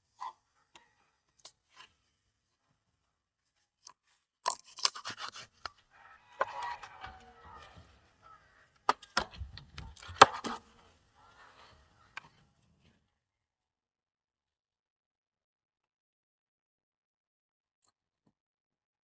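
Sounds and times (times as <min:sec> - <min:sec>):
knife cutting raw chicken: 0:03.9 - 0:12.2.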